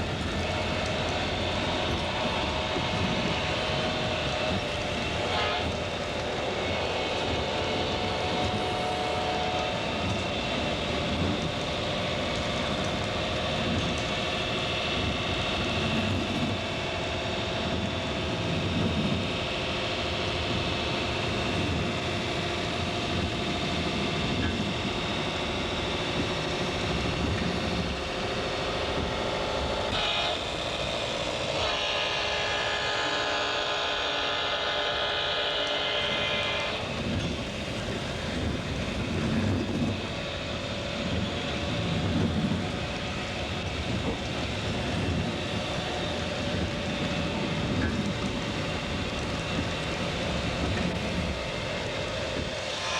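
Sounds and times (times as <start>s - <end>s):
train running: 0.0s - 52.9s
multi-note train horn: 4.5s - 10.2s, 29.4s - 30.8s.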